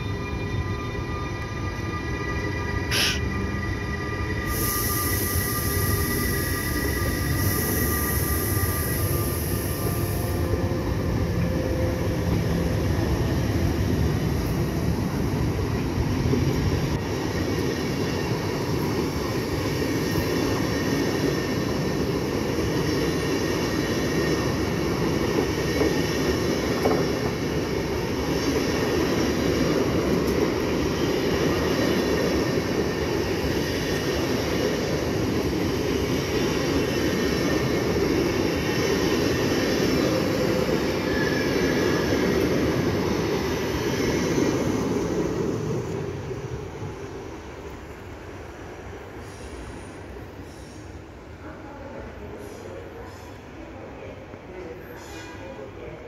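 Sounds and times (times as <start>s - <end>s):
train wheels rumbling on rail: 1.9s - 56.0s
faint high wheel squeal: 54.8s - 55.6s.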